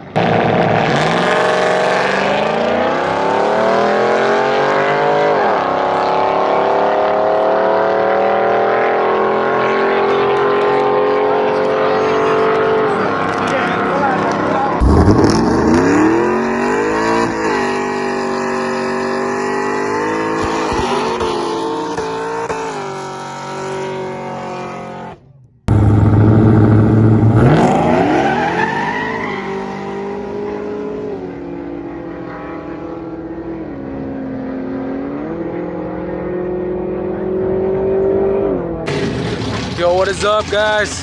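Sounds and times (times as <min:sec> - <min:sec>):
cars accelerating at full throttle: 0:00.0 - 0:41.0.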